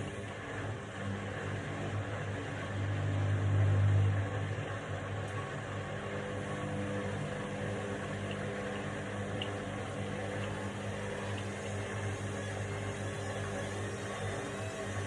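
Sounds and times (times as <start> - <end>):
washing machine spin cycle hum: 0.0 - 15.0.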